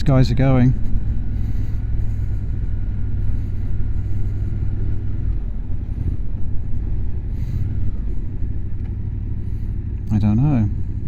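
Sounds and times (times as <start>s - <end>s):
motorcycle engine running: 0.0s - 11.0s
road and wind noise: 0.0s - 11.0s.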